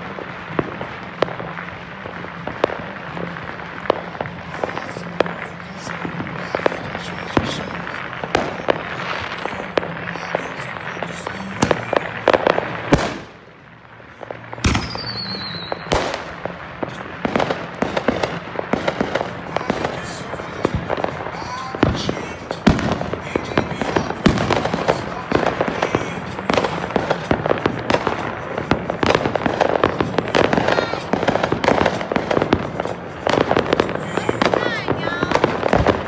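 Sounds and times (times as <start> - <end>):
fireworks bangs: 0.0 - 36.0
fireworks crackling: 0.0 - 36.0
firework whistle: 14.5 - 36.0.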